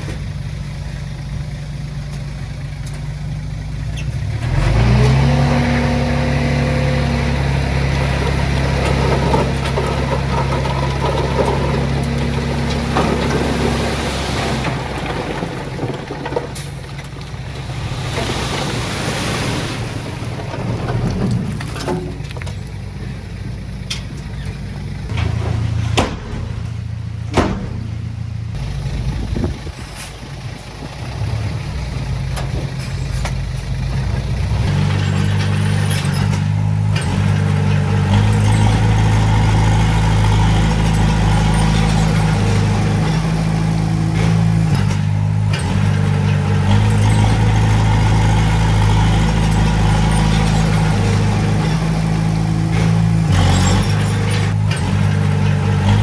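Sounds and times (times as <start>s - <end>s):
heavy diesel engine running: 0.0s - 56.0s
sharp knocks: 27.3s - 28.1s.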